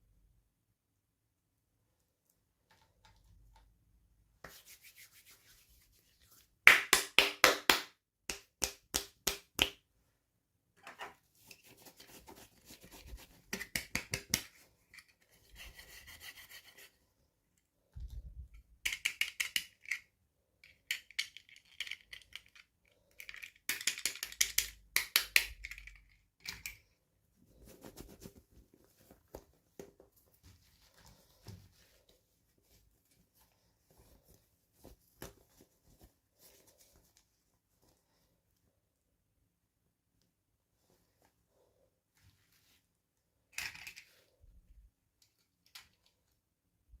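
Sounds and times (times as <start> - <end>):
toy packaging being handled: 43.5 - 44.3.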